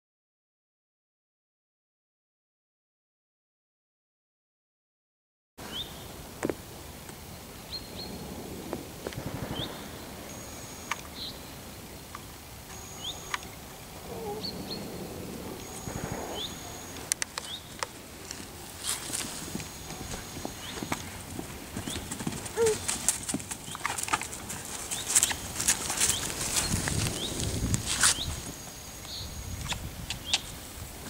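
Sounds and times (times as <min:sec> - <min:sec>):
wind rustle: 0:05.6 - 0:31.0
bird rising chirps: 0:12.7 - 0:17.8
thin high whistles: 0:15.3 - 0:17.6
sharp clicks: 0:15.6 - 0:18.4.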